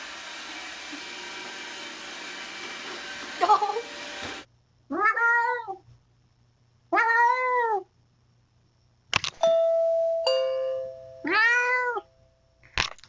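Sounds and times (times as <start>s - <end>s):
cat meowing: 4.9s - 5.8s, 6.9s - 7.9s, 11.2s - 12.1s
doorbell ding-dong chime: 9.4s - 11.2s.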